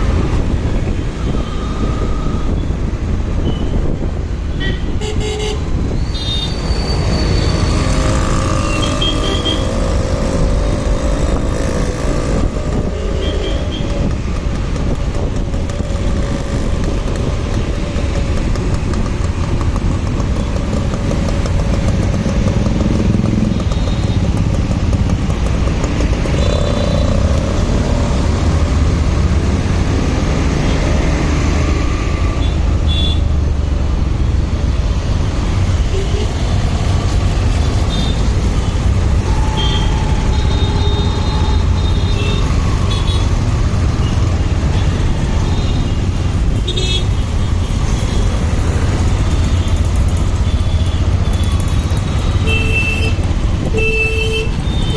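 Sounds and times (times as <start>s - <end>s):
motorcycle engine and road noise: 0.0s - 54.9s
vehicle horn toots: 8.6s - 9.7s, 39.2s - 43.2s.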